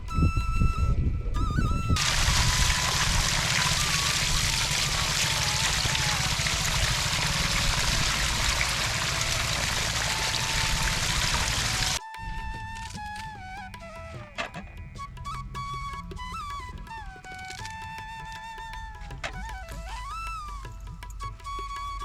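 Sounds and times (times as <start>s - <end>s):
running water: 2.0s - 12.0s.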